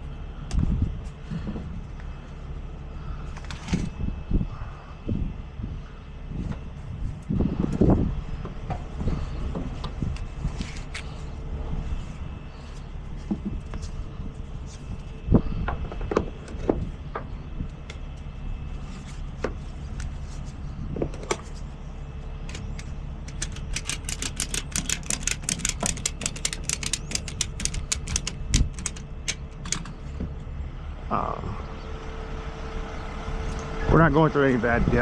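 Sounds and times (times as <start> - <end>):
truck engine idling: 11.0 - 34.7
rapid sharp metallic clicking: 22.5 - 30.0.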